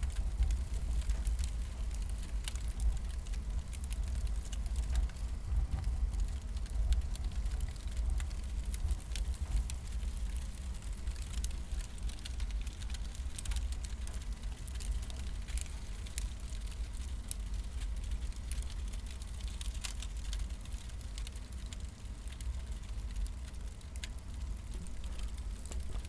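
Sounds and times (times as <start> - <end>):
steady low rumble: 0.0 - 26.0
wood fire crackling and popping: 0.0 - 26.0.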